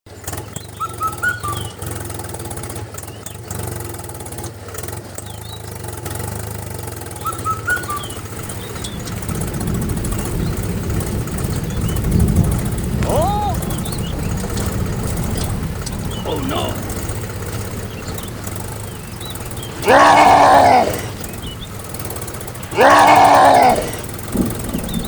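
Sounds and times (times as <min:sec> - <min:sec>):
small engine running: 0:00.1 - 0:25.0
bird-like chirps: 0:00.5 - 0:01.9, 0:07.2 - 0:09.4, 0:13.0 - 0:19.8.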